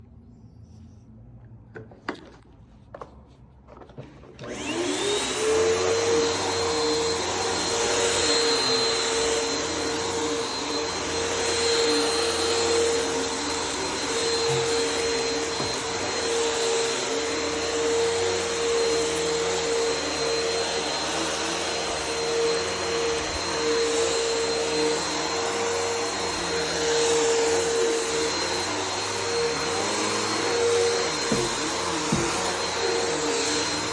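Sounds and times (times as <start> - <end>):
vacuum cleaner running: 3.9 - 33.9.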